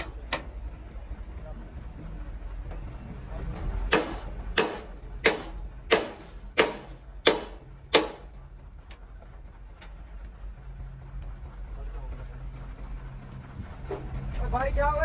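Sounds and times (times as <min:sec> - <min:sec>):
hammer striking metal: 0:00.0 - 0:00.5, 0:03.6 - 0:08.3.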